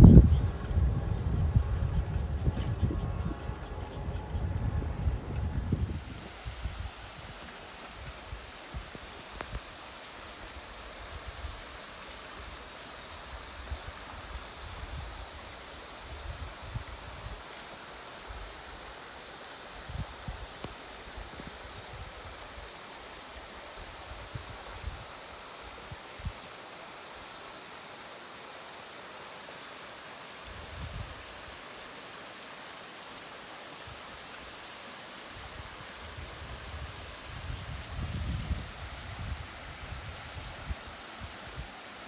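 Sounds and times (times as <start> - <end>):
wind buffeting on microphone: 0.0 - 7.4, 35.4 - 41.6
steady rushing hiss: 0.0 - 42.0.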